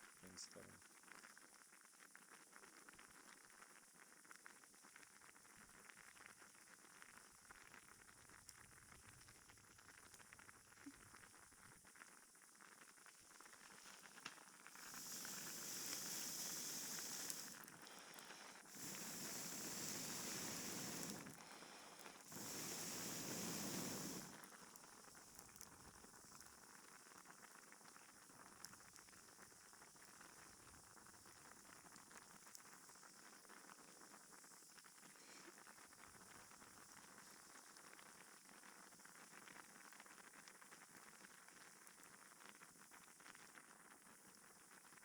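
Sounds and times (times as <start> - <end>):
campfire crackling: 13.3 - 27.0
fire hissing: 13.4 - 26.6.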